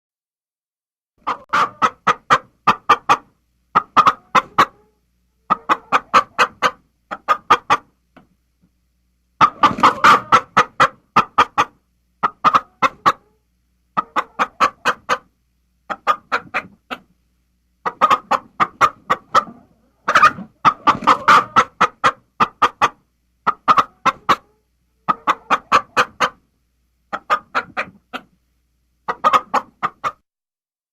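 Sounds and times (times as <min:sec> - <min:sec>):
bird clucking: 0:01.2 - 0:08.0, 0:09.4 - 0:13.4, 0:14.0 - 0:15.3, 0:15.9 - 0:17.1, 0:17.8 - 0:26.4, 0:27.1 - 0:28.4, 0:29.0 - 0:30.2.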